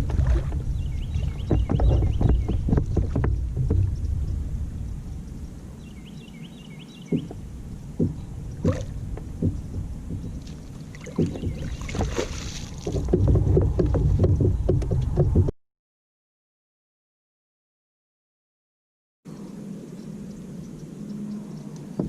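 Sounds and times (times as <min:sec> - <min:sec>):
wind rumble: 0:00.0 - 0:15.5
knocks on kayak hull: 0:01.2 - 0:03.9, 0:07.1 - 0:15.5.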